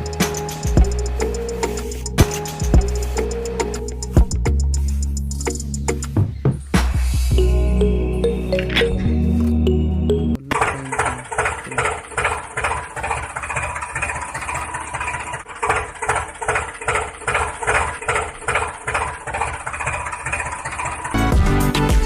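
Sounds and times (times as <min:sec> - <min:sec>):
tractor engine idling: 0:00.0 - 0:06.2, 0:10.1 - 0:21.8
background music: 0:00.0 - 0:10.4, 0:21.2 - 0:22.0.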